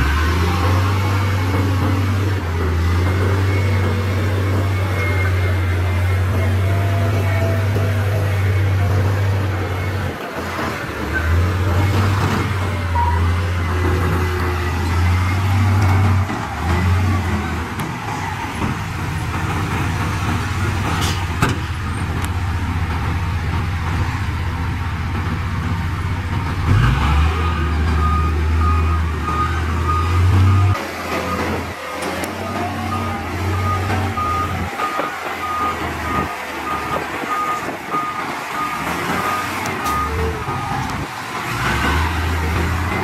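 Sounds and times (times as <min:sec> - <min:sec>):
reversing alarm beeping: 0:00.0 - 0:17.8, 0:26.7 - 0:42.6
heavy diesel engines droning: 0:00.0 - 0:43.0.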